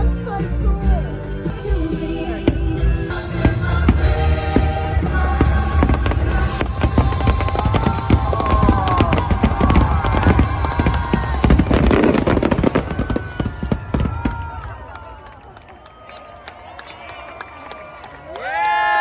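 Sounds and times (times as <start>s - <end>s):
music playing: 0.0s - 14.1s
low rumble: 1.1s - 14.6s
fireworks cracking and banging: 2.4s - 15.5s.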